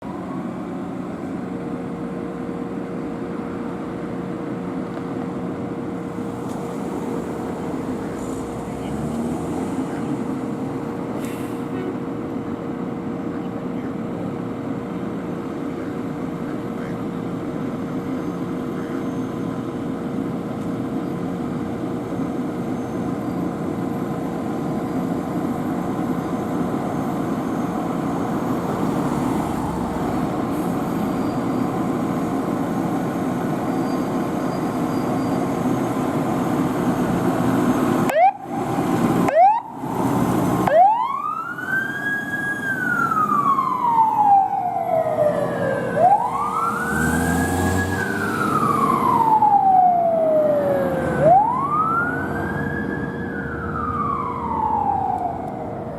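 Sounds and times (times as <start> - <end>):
fire engine running: 0.0 - 55.9
siren chirps: 22.6 - 55.9
siren wailing: 22.7 - 30.5, 37.7 - 55.9.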